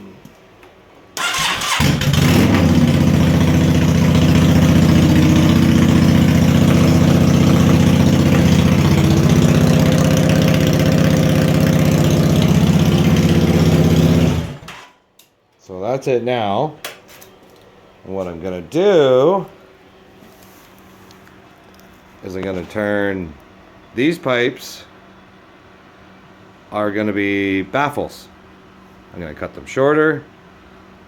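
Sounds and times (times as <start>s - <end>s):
motorcycle engine idling: 1.6s - 14.7s.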